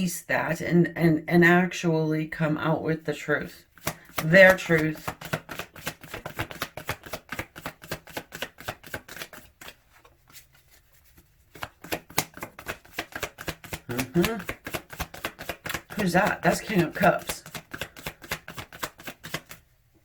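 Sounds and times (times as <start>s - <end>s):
cards being shuffled: 3.8s - 19.6s.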